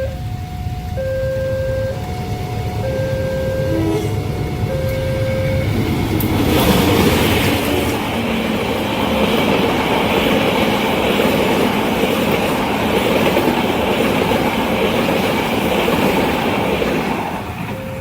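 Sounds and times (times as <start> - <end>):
train wheels clattering on rails: 3.8 - 18.0.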